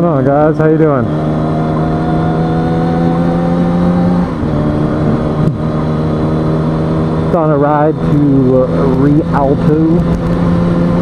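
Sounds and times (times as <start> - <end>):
motorcycle engine running: 0.0 - 11.0
wind rush: 4.0 - 7.2.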